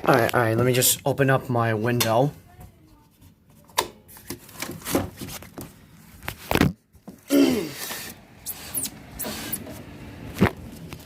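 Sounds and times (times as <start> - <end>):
window squeak: 8.4 - 9.8.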